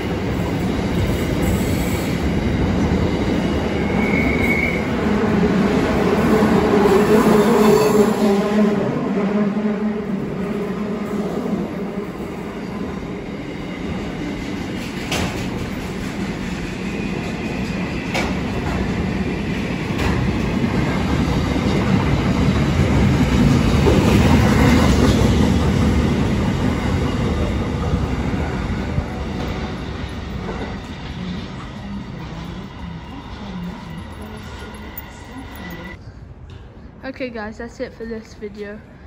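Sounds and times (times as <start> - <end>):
freight train wheels rumbling: 0.0 - 36.7.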